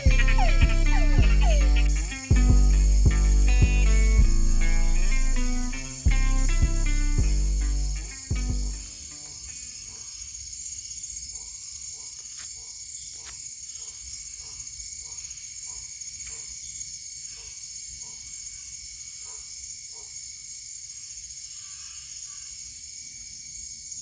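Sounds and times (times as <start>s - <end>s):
short low call: 0.0s - 2.9s
insect chorus drone: 7.6s - 24.0s.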